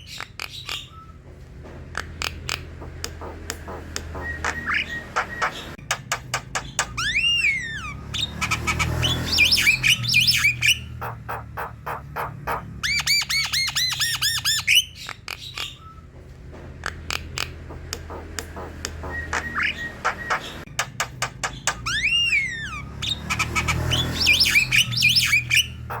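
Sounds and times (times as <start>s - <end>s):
bird singing clicks and whistles: 2.0s - 7.6s, 12.5s - 16.0s, 16.8s - 26.0s.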